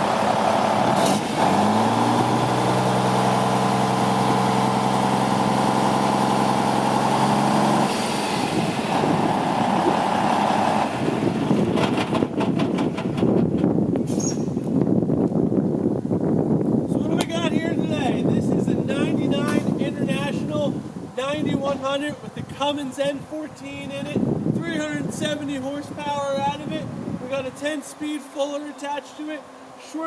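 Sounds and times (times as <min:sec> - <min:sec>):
diesel truck engine droning: 0:00.0 - 0:14.0
rattling clatter: 0:11.4 - 0:13.8.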